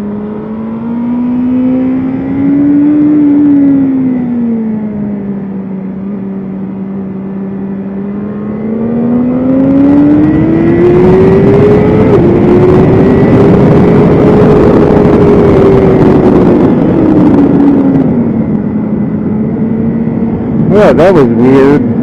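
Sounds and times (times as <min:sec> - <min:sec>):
motorcycle engine accelerating: 0:00.0 - 0:22.0
rush of wind noise: 0:00.0 - 0:22.0.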